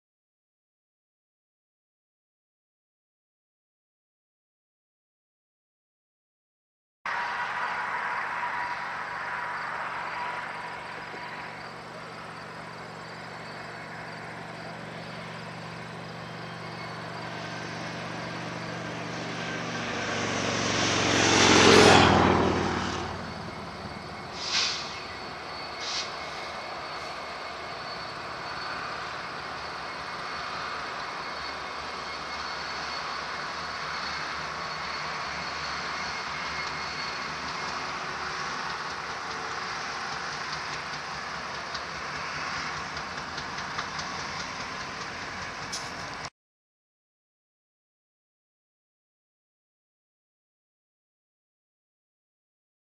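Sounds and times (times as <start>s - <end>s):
locomotive engine drone: 7.1s - 46.3s
train wheels rumbling on rails: 7.2s - 46.3s.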